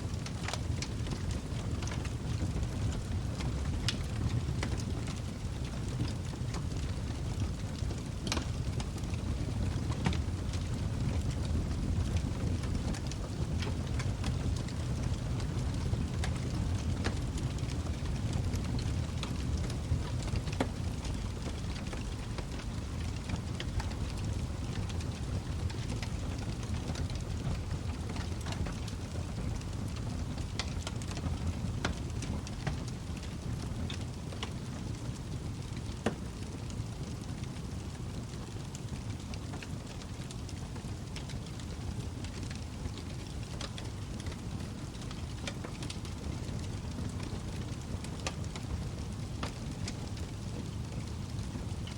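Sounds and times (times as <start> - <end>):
fire crackling and popping: 0.0 - 51.9.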